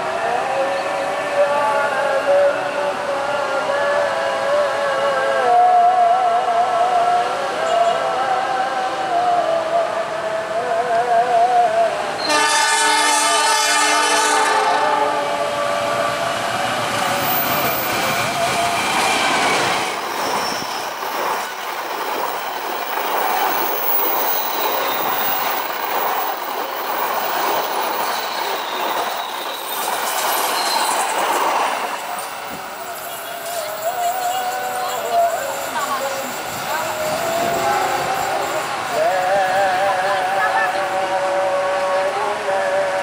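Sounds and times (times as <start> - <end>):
passenger train passing at speed: 0.0 - 43.0
diesel locomotive horn chord: 12.2 - 16.6.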